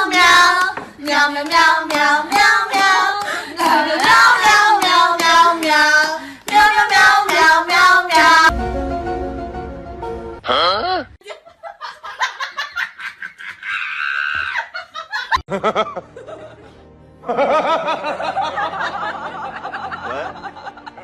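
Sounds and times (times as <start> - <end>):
background music: 0.0 - 11.2, 15.5 - 21.0
people laughing: 10.6 - 21.0.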